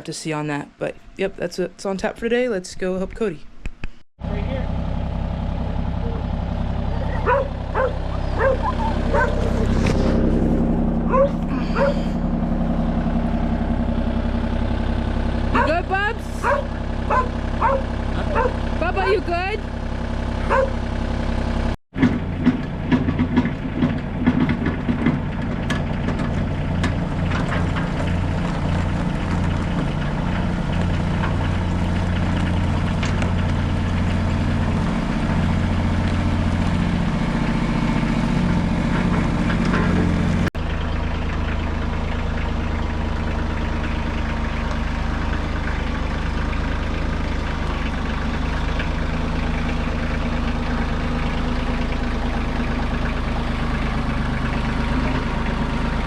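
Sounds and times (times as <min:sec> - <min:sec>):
heavy machinery engine humming: 0:04.2 - 0:56.0.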